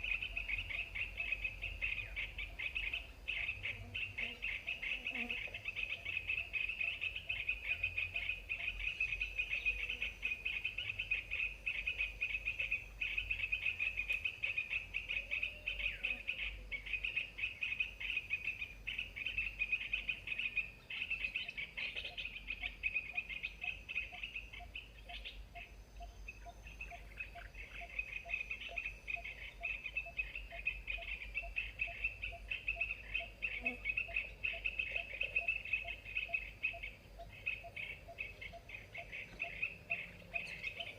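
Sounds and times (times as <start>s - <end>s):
rapid chattering bird calls: 26.8s - 40.9s.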